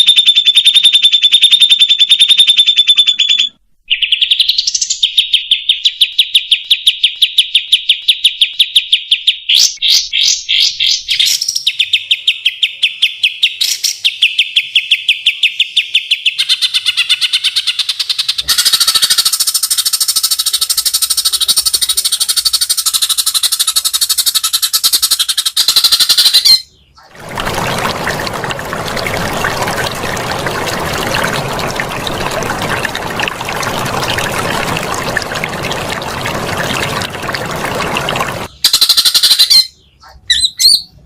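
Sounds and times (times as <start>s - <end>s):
rushing water noise: 27.1s - 38.5s.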